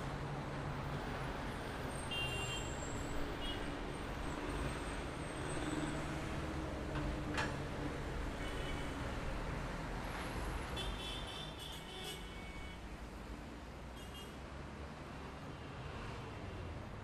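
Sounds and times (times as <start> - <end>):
passing vehicles hum: 2.8 - 10.8, 12.9 - 17.0.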